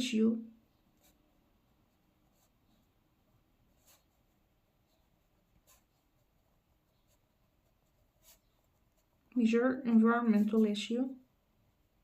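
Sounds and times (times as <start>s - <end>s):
pen scratching on paper: 1.0s - 1.2s, 1.8s - 3.0s, 3.7s - 9.2s.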